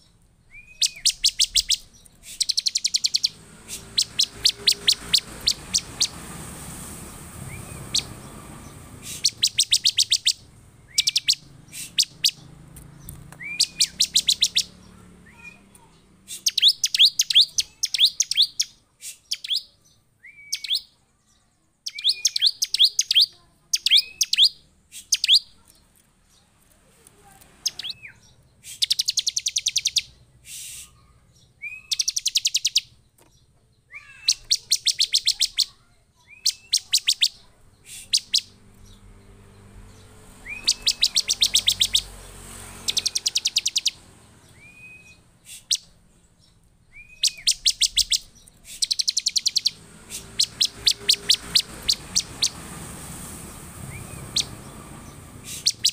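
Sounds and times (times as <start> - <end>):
bird chipping calls: 0.0 - 20.9, 21.8 - 25.8, 27.6 - 55.9
bird sliding whistled notes: 0.5 - 6.6, 7.4 - 8.3, 9.0 - 12.4, 13.4 - 14.7, 36.4 - 38.6, 40.4 - 45.9, 47.0 - 54.7, 55.4 - 55.9.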